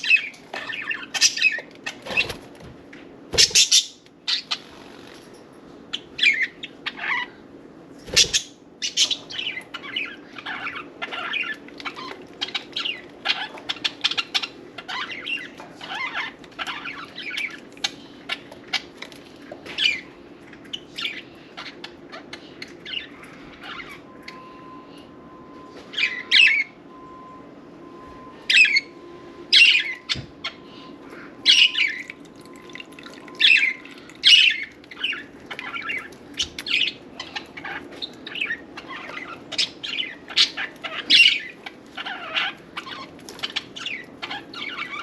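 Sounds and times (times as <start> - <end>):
budgerigars chattering: 3.4 - 4.6, 33.4 - 45.0.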